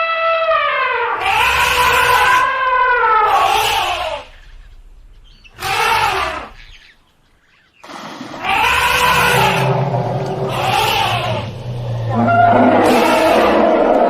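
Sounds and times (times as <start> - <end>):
elephant trumpeting calls: 0.0 - 14.0
low steady rumble: 1.2 - 14.0.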